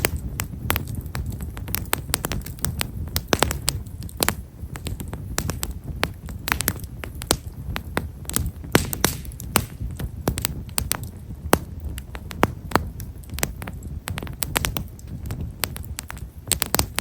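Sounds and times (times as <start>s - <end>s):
firewood crackling and popping: 0.0s - 17.0s
low steady rumble: 0.0s - 17.0s.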